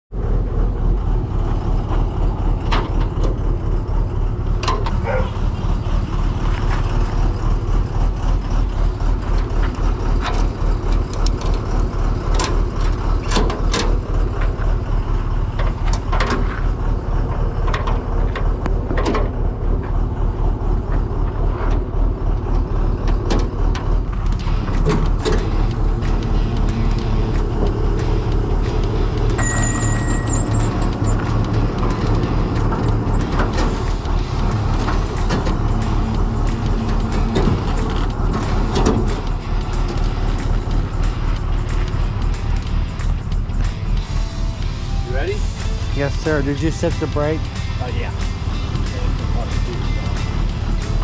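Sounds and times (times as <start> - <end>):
truck engine droning: 0.1 - 51.0
knocks and rattles: 23.1 - 44.0.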